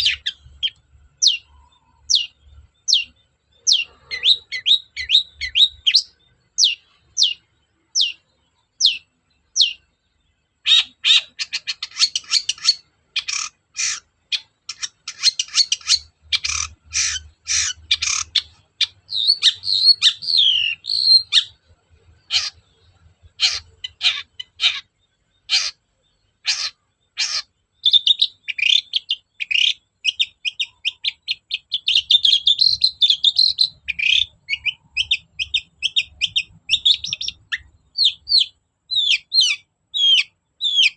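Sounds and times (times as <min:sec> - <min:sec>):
bird singing harsh chattering: 0:00.0 - 0:40.9.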